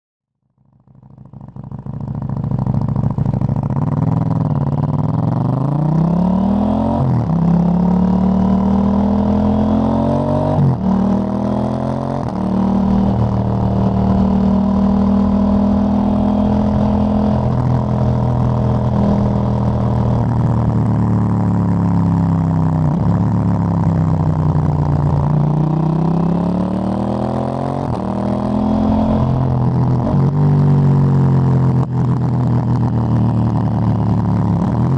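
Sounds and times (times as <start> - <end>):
motorcycle engine accelerating: 0.5 - 34.9.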